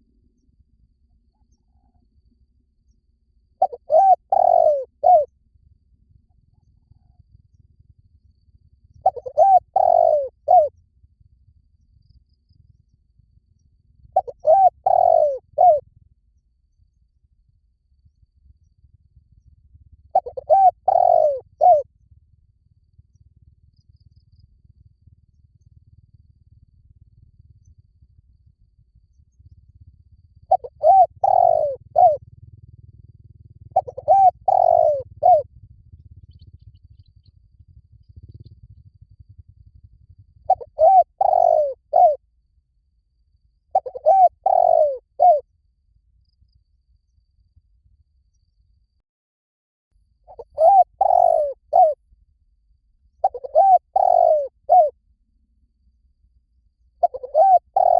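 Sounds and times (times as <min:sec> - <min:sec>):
dove cooing: 0:03.6 - 0:05.3, 0:08.9 - 0:10.7, 0:14.2 - 0:15.8, 0:20.1 - 0:21.8, 0:30.5 - 0:32.2, 0:33.7 - 0:35.5, 0:40.4 - 0:42.2, 0:43.7 - 0:45.4, 0:50.3 - 0:52.0, 0:53.2 - 0:55.0, 0:57.0 - 0:57.9.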